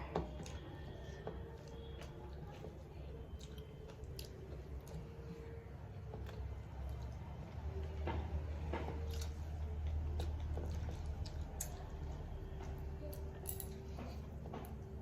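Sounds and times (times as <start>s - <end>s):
person chewing wetly: 0.2s - 7.7s, 8.7s - 15.0s.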